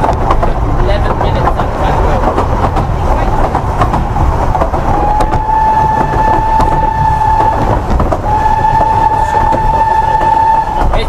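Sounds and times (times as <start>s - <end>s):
train rumbling on rails: 0.0s - 11.0s
steam locomotive whistle blasts: 5.0s - 11.0s.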